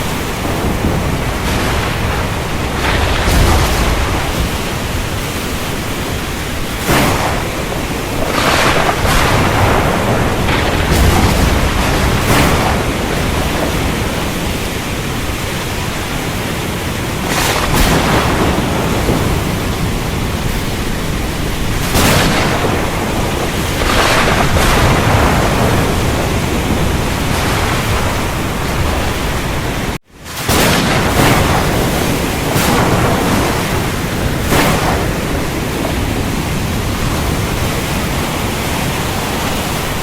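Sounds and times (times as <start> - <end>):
steady rain: 0.0 - 40.0
thunder rolling: 0.0 - 40.0.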